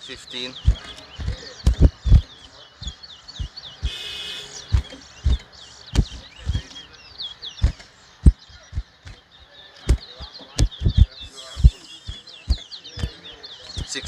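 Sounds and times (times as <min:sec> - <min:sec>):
finches chirping and twittering: 0:00.0 - 0:14.0
dull low thumps: 0:00.5 - 0:06.8, 0:07.4 - 0:14.0.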